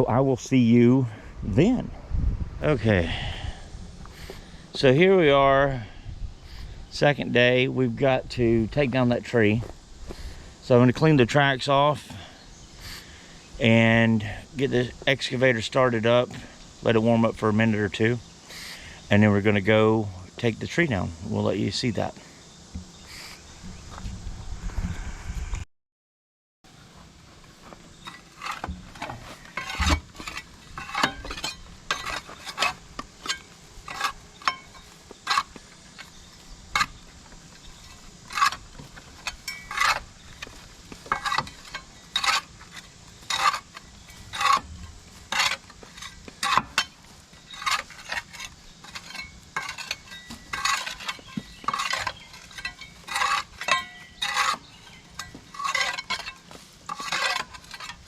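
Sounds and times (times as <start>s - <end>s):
tool scraping mud off metal: 27.7s - 58.0s.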